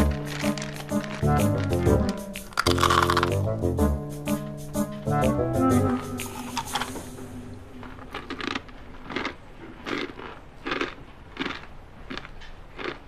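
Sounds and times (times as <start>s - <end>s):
person chewing crunchy food: 0.0s - 3.5s, 7.8s - 13.0s.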